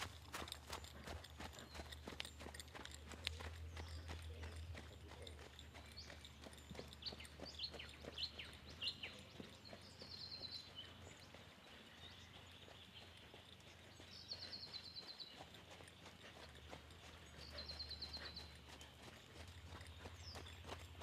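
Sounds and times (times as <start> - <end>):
birds calling: 0.0 - 21.0
faint hoofbeats of horse trotting: 0.0 - 21.0.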